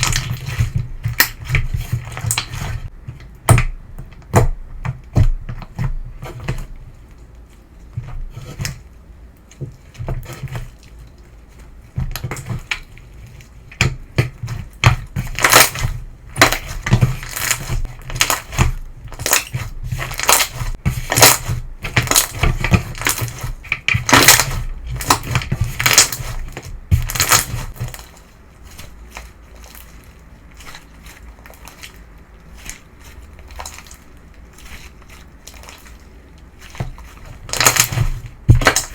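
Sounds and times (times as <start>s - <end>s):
slime crackling and popping: 14.8s - 38.9s.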